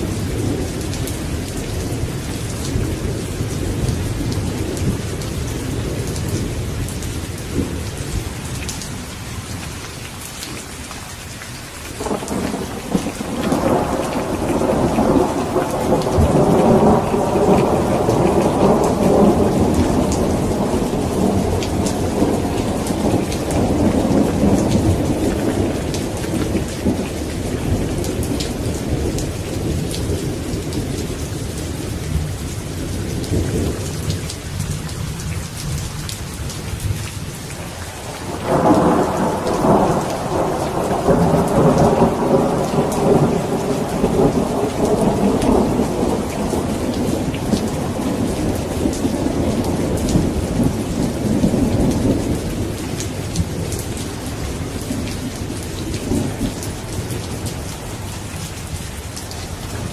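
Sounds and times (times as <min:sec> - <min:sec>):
heavy rain: 0:00.0 - 0:59.9
rolling thunder: 0:12.0 - 0:34.3, 0:37.7 - 0:58.1.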